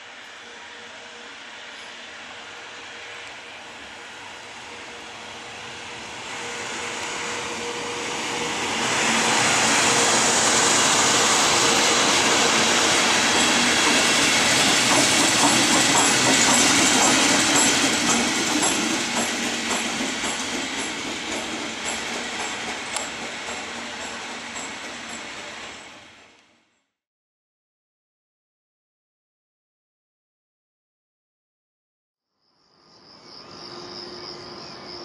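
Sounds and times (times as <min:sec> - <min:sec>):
train wheels rumbling: 0:00.1 - 0:26.4.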